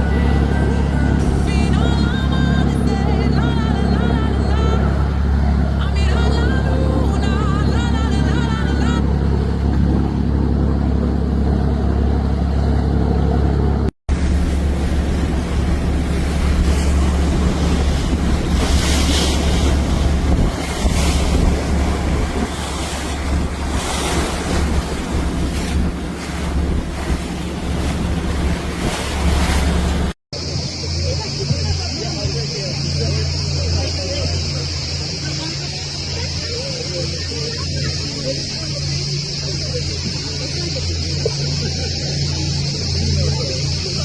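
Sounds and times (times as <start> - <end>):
boat engine running: 0.0 - 44.0
sea water rushing: 0.0 - 44.0
wind buffeting microphone: 14.1 - 30.8.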